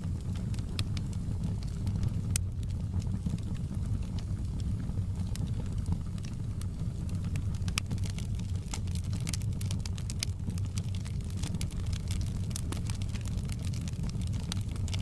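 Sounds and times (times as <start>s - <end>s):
fire popping and snapping: 0.0s - 15.0s
wood fire crackling: 0.0s - 15.0s.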